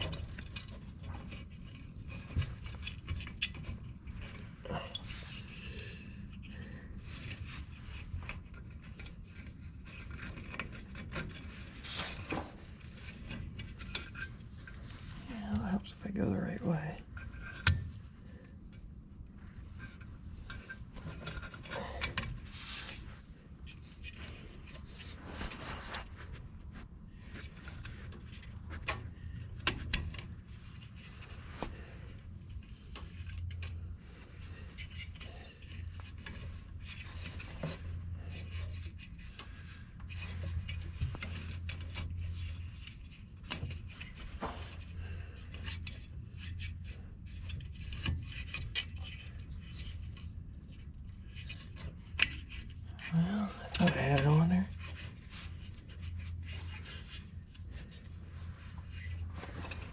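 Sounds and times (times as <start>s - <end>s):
metal clip clicking and scraping: 17.1s - 18.0s, 32.1s - 59.8s.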